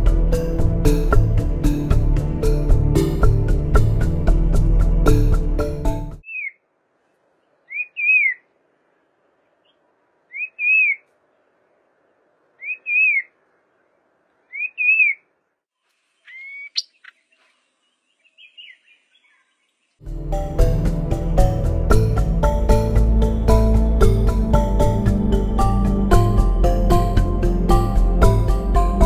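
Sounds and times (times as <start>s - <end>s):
background music: 0.0s - 6.2s, 20.0s - 29.0s
bird calling: 6.2s - 8.6s, 9.4s - 15.4s, 16.0s - 20.0s
faint bird chirps: 6.2s - 20.0s.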